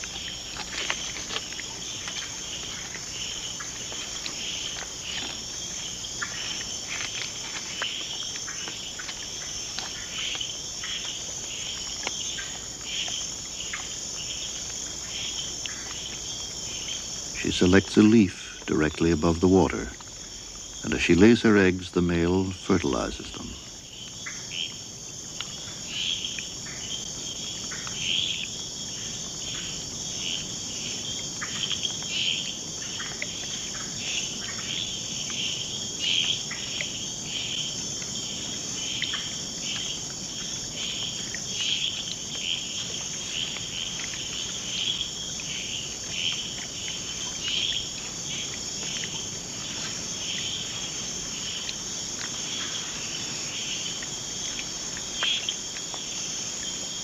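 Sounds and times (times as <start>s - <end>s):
shrill insect chorus: 0.0s - 57.0s.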